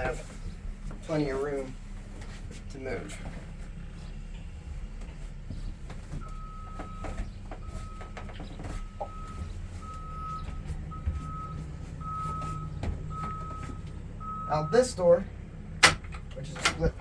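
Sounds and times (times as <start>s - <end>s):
low steady rumble: 0.0s - 17.0s
vehicle reversing alarm beeping: 6.1s - 15.3s.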